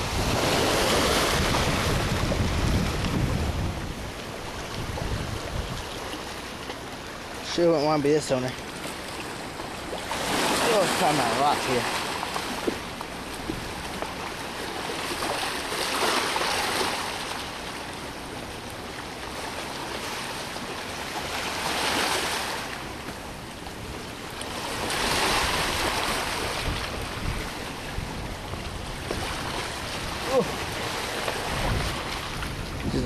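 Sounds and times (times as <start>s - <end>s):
wind on microphone: 0.0s - 6.2s, 24.6s - 33.0s
waves breaking on rocky shore: 0.0s - 33.0s.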